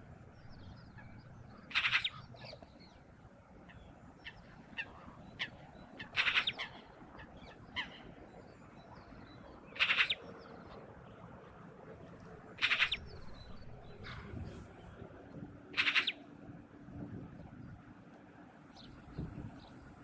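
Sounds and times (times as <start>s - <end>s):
soft outdoor hiss: 0.0s - 20.0s
bird harsh call: 0.9s - 2.6s, 4.2s - 8.1s, 9.7s - 10.2s, 12.6s - 13.3s, 15.7s - 16.2s.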